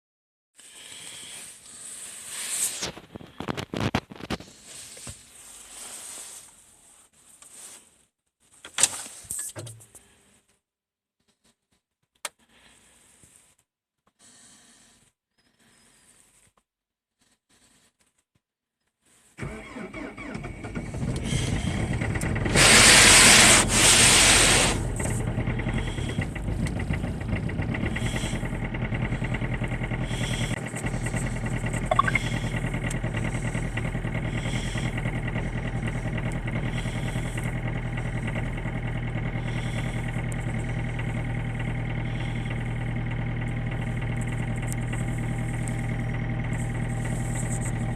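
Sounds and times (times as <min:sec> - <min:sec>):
diesel engine starting and idling: 0:19.4 - 0:47.9.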